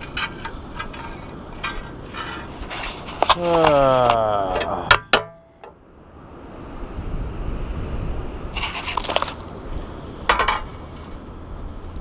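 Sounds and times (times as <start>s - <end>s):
sand scoop scraping gravel: 0.0s - 4.3s, 8.5s - 11.3s
steady low rumble: 0.0s - 12.0s.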